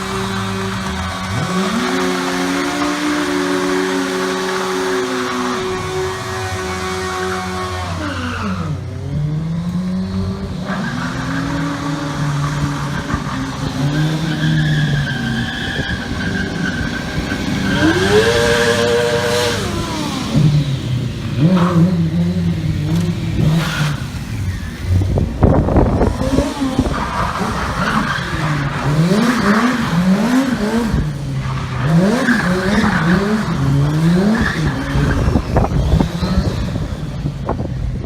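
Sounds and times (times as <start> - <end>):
motorcycle engine revving: 0.0 - 38.0
tyre squeal: 10.7 - 20.7.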